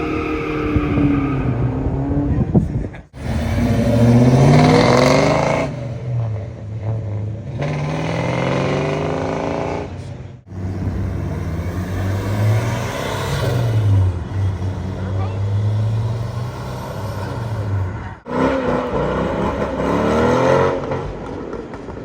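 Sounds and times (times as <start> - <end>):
car engines accelerating hard: 0.0 - 22.0.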